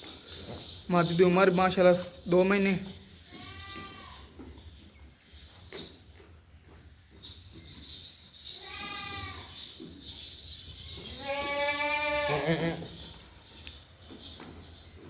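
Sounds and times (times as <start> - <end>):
goat bleating: 3.3 - 4.3, 8.6 - 9.6, 11.0 - 13.0.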